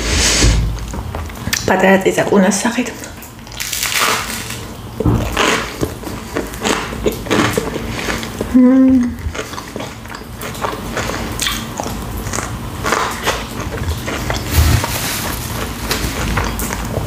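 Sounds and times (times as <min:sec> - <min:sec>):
chewing a crunchy sandwich: 0:03.2 - 0:17.0
person humming mm: 0:08.5 - 0:09.3.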